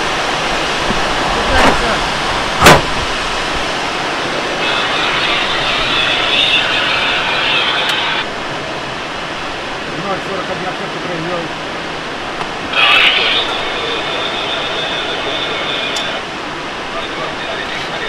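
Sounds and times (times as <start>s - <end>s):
airflow rushing over glider: 0.0s - 10.0s, 11.0s - 18.0s
sharp knock: 2.6s - 2.9s
high hiss: 4.6s - 8.3s.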